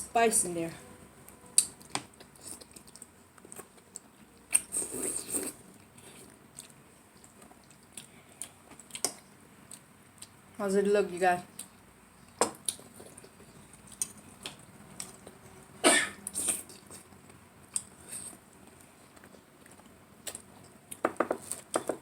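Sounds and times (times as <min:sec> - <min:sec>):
short cough: 0:15.8 - 0:16.2.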